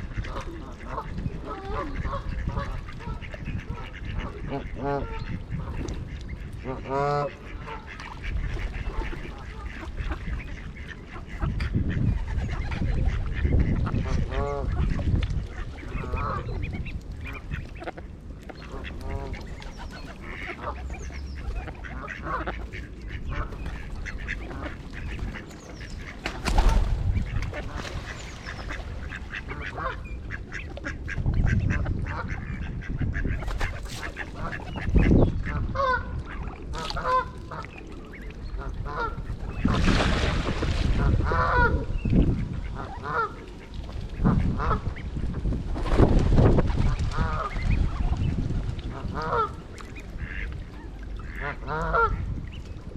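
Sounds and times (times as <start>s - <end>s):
ducks calling: 0.0s - 40.2s, 41.0s - 45.1s, 48.9s - 52.7s
geese honking: 18.6s - 26.2s, 27.2s - 33.3s, 37.0s - 39.7s, 42.7s - 43.6s, 49.0s - 50.6s, 51.2s - 52.2s
sharp knocks or splashes: 26.1s - 29.2s, 39.6s - 41.0s.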